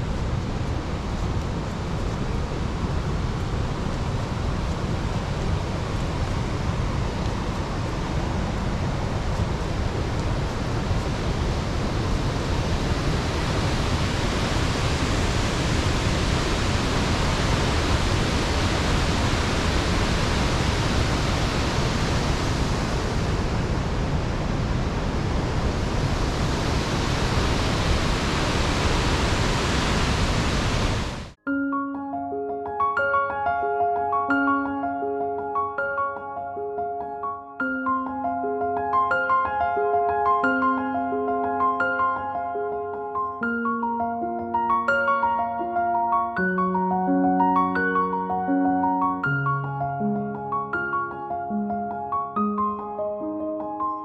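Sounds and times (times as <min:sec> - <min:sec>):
waterfall roaring: 0:00.0 - 0:31.4.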